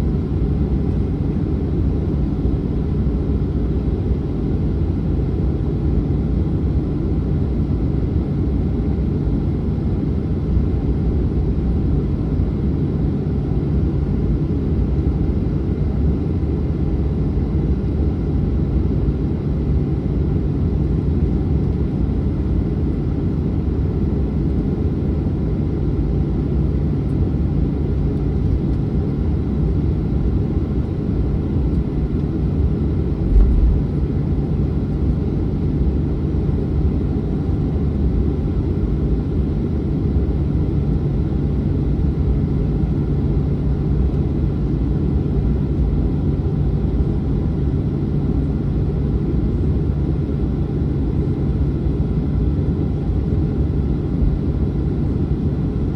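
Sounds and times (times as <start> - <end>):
jet engines rumbling: 28.4 - 37.0
low thump: 33.2 - 34.2.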